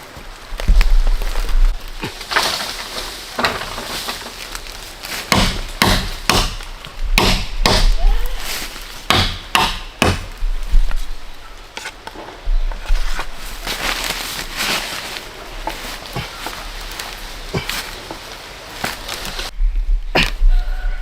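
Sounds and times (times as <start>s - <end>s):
chopping blows on wood: 5.3s - 8.1s.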